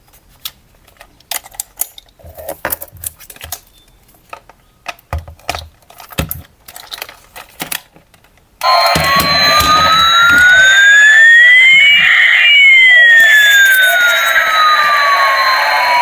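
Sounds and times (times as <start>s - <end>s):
toy electronic siren: 8.6s - 16.0s.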